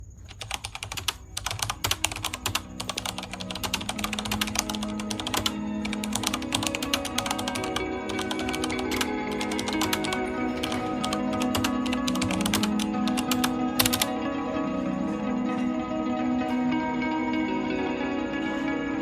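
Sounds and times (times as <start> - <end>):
keyboard typing clicks: 0.2 - 14.1
soft music: 0.5 - 19.0.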